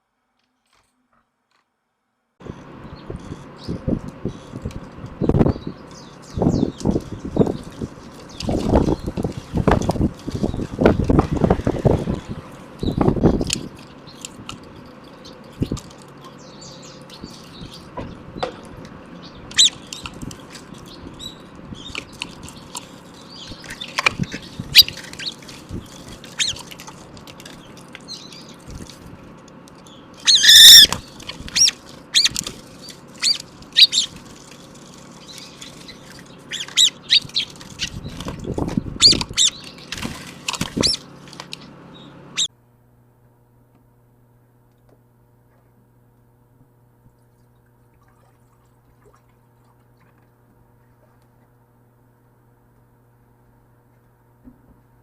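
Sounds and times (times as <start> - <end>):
songbirds chirping: 2.4 - 42.5
bird squawking: 19.5 - 20.0, 23.2 - 25.4, 26.3 - 26.7, 30.2 - 32.4, 33.1 - 34.2, 35.2 - 38.2, 39.0 - 39.9, 40.8 - 42.5.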